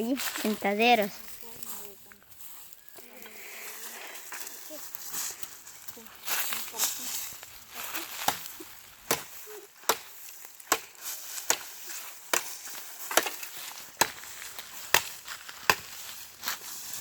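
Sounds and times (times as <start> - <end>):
blade chopping wood: 8.1 - 16.0.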